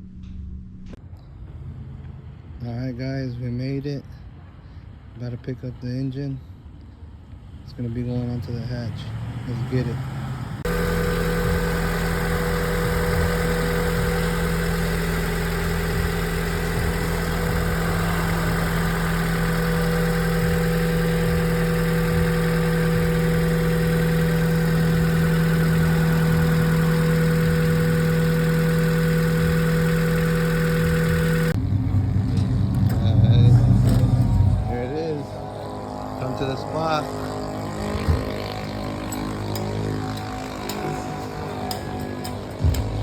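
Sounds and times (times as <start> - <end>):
engine idling: 9.8 - 43.0.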